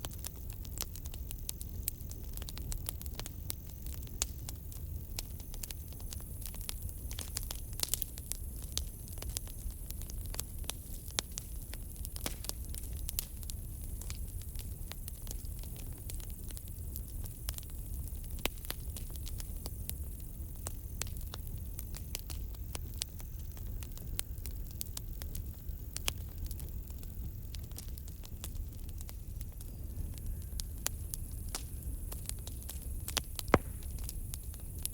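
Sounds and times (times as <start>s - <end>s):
campfire crackling and popping: 0.0s - 34.9s.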